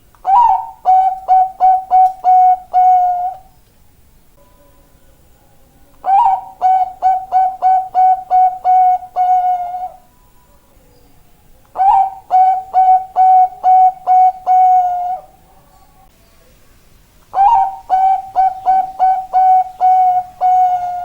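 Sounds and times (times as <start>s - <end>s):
dove cooing: 0.2s - 3.5s, 6.0s - 10.6s, 11.7s - 15.7s, 17.3s - 21.0s.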